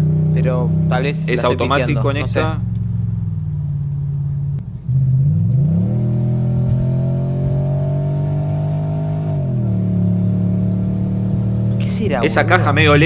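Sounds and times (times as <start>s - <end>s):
car engine accelerating: 3.8s - 11.8s.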